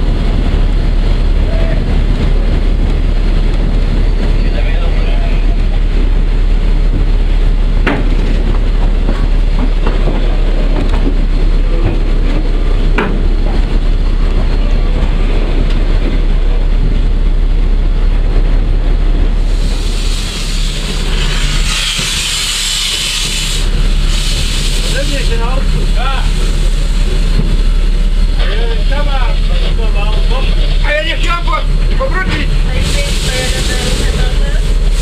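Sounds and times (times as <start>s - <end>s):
steam locomotive rumbling: 0.0s - 35.0s
loud steam hiss: 19.4s - 27.3s, 32.5s - 35.0s.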